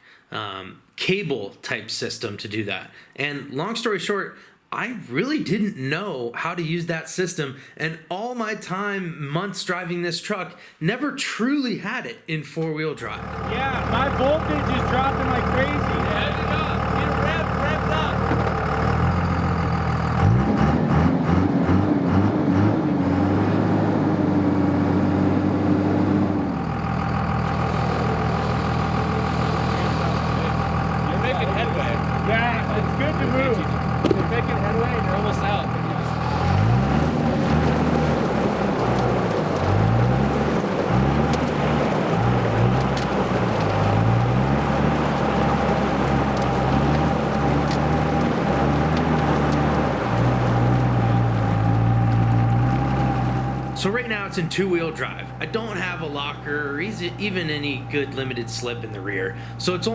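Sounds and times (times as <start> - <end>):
pickup engine revving high: 13.2 - 59.8.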